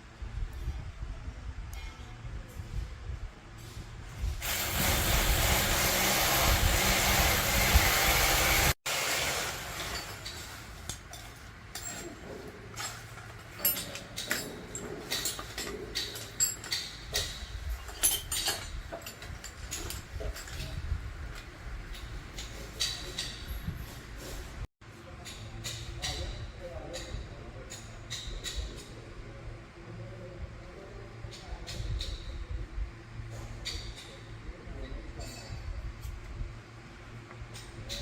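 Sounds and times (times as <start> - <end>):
loud steady hiss: 4.4 - 10.2
tools clinking against metal: 9.8 - 20.8, 21.9 - 24.0, 35.2 - 35.8.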